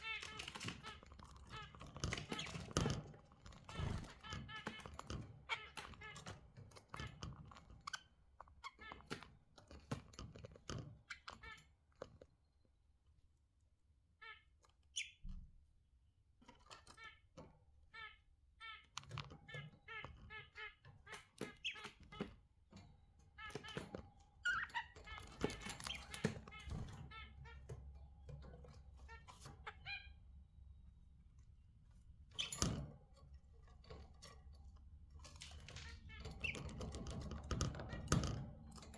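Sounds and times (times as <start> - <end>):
budgerigars chirping: 0.0 - 7.2, 18.0 - 22.3, 23.3 - 28.2, 29.0 - 30.3, 35.4 - 37.0
clicks and taps in cage: 0.1 - 12.4, 18.8 - 29.6, 32.3 - 38.9.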